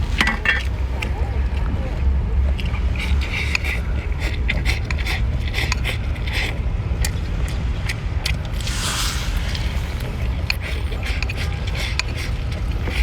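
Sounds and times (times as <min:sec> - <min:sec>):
smacking and slurping: 0:03.0 - 0:13.0
low rumble: 0:08.4 - 0:11.2.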